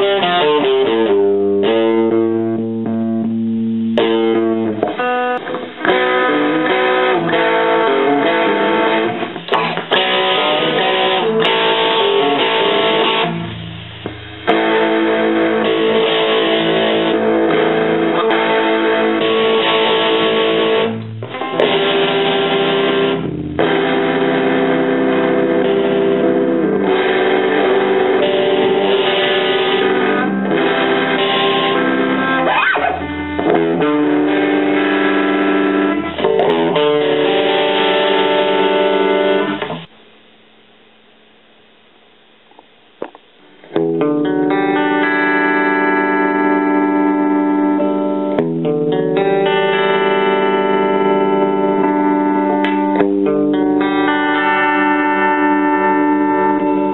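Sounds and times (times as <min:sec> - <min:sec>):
electric guitar playing: 0:00.0 - 0:39.9, 0:42.6 - 0:56.9.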